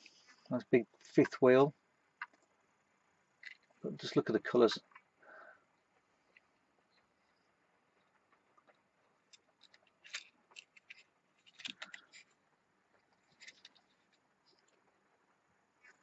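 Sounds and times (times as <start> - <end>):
toy truck clicks and scrapes: 9.3 - 12.4.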